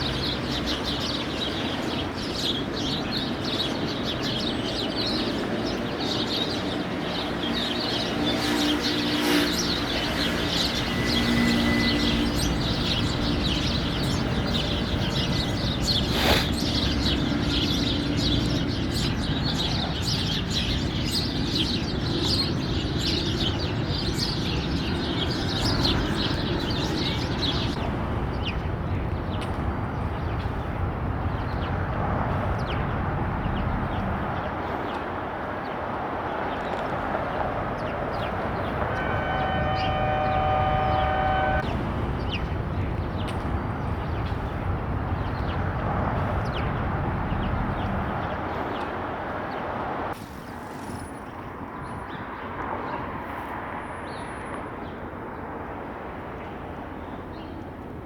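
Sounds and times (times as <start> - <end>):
sparrows chirping: 0.0 - 49.6
city traffic rumble: 0.0 - 58.0
distant horn: 6.8 - 18.7, 36.9 - 42.6.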